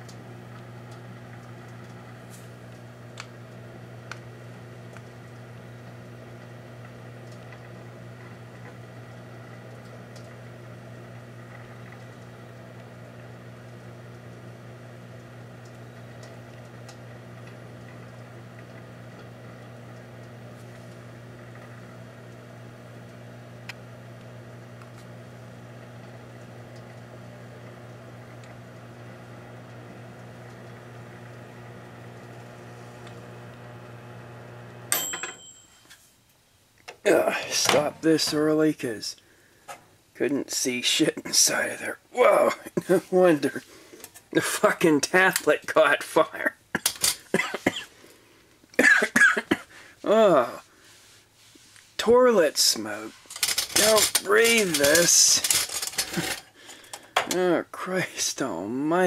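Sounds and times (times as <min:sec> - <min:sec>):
microwave oven humming: 0:00.0 - 0:59.0
microwave stop click: 0:15.2 - 0:35.5.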